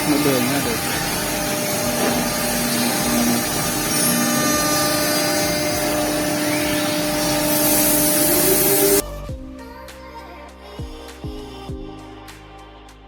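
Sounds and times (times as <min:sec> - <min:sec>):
cnc router spindle whine: 0:00.0 - 0:09.0
cutting noise: 0:00.0 - 0:09.0.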